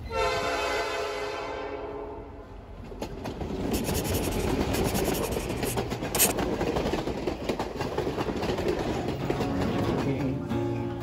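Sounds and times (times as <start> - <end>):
train wheels clattering over rail joints: 2.8 - 3.8, 5.7 - 10.8.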